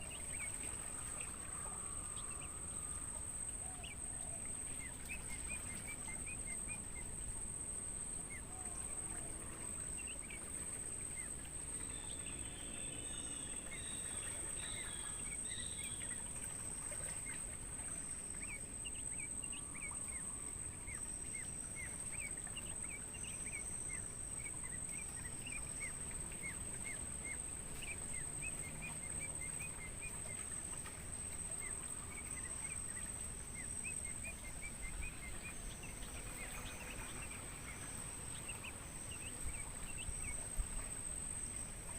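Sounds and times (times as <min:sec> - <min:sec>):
crickets trilling: 0:00.0 - 0:41.9
bird chirps: 0:11.1 - 0:40.9.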